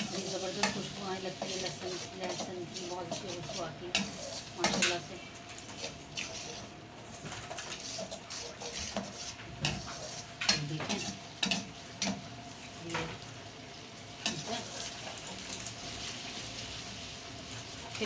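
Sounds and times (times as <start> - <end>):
metal spoon scraping a pan: 0.0 - 6.7, 7.3 - 12.2, 14.2 - 15.8
onions sizzling in hot oil: 0.0 - 18.0.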